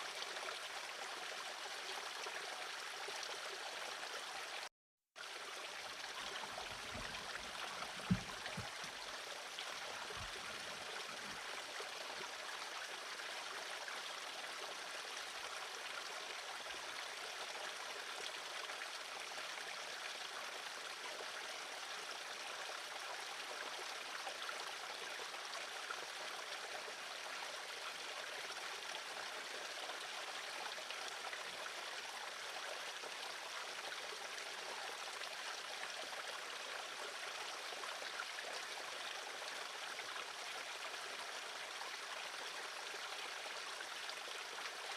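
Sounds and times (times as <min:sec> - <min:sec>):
soft low thumps: 0:06.6 - 0:08.9.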